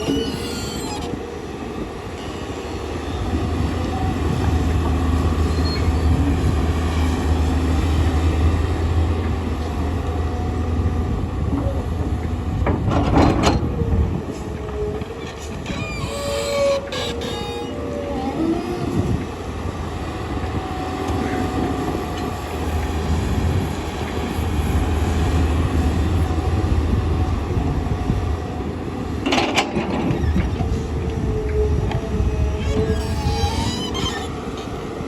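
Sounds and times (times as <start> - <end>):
excavator diesel engine rumbling: 0.0 - 35.0.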